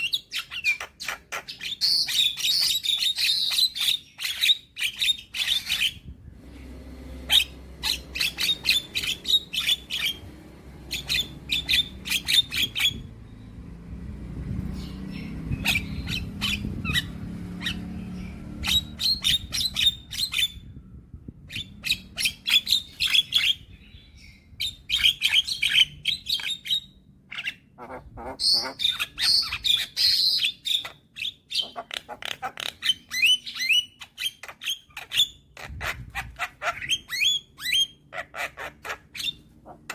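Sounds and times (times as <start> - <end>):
bird harsh chattering song: 0.0 - 6.2, 7.2 - 13.5, 14.6 - 20.8, 21.4 - 39.9.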